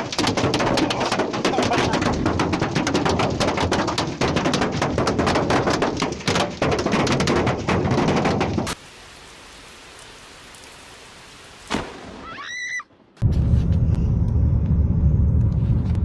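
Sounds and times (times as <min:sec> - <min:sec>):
rapid clatter of small impacts: 0:00.0 - 0:08.8.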